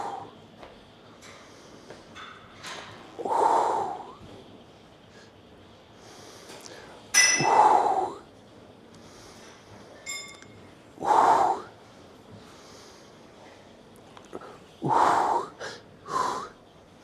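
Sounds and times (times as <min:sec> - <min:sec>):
man exhaling forcefully: 0:07.4 - 0:08.2.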